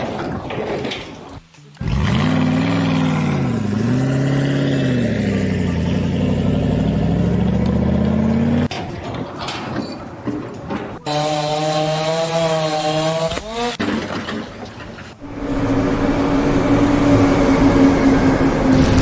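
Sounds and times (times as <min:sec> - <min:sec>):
engine revving under load: 0:01.8 - 0:08.7, 0:15.2 - 0:19.0.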